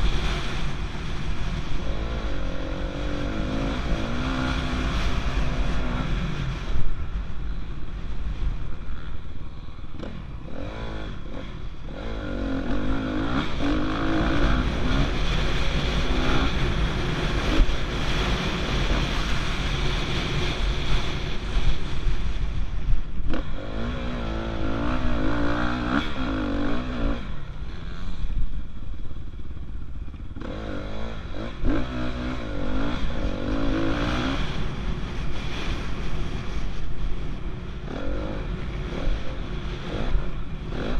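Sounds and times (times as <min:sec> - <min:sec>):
dirt bike engine revving: 0:00.0 - 0:07.6, 0:08.8 - 0:21.8, 0:23.3 - 0:28.4, 0:30.3 - 0:36.5.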